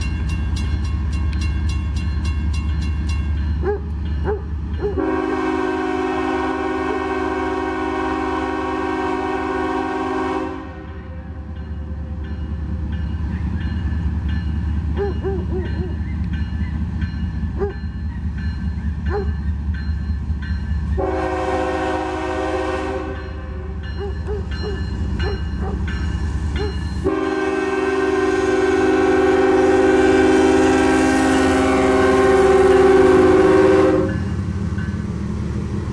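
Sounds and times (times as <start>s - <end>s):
train rumbling past: 0.0s - 35.9s
train air horn blasts: 4.8s - 11.3s, 21.0s - 23.8s, 27.0s - 34.4s.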